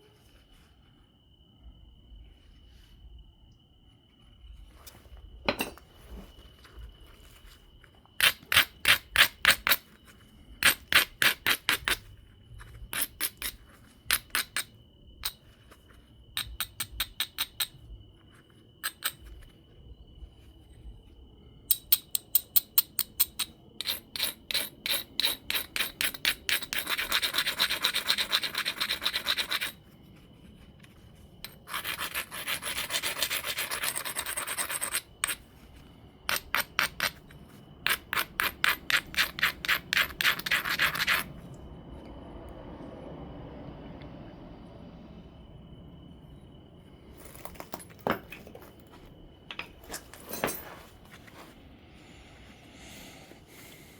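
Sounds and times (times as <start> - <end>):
stone scraping stone edge: 12.9 - 15.4, 23.8 - 29.8, 31.4 - 35.4, 36.3 - 41.3.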